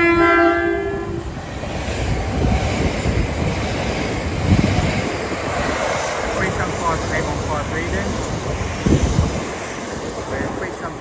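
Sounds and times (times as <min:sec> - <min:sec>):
train horn: 0:00.0 - 0:01.3
train rushing by on rails: 0:00.0 - 0:11.0.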